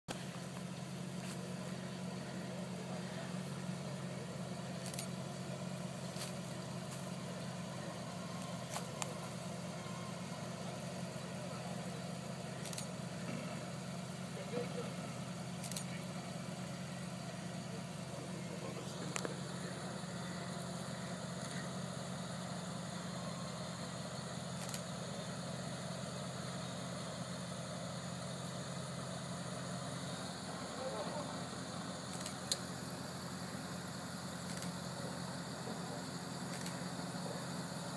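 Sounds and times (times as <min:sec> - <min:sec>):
engine idling: 0:00.0 - 0:37.9
sharp clicks: 0:32.1 - 0:32.7, 0:34.4 - 0:34.8, 0:36.5 - 0:36.8.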